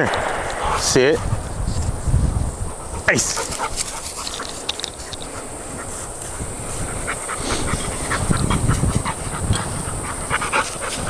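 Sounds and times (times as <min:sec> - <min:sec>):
dog panting: 0:02.9 - 0:11.0.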